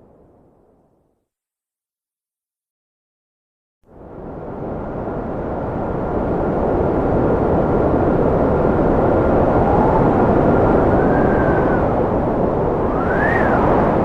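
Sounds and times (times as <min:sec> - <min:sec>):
howling wind tone: 0:03.9 - 0:14.0
gusty wind rushing: 0:04.1 - 0:14.0
faint thin whistle: 0:13.0 - 0:13.6.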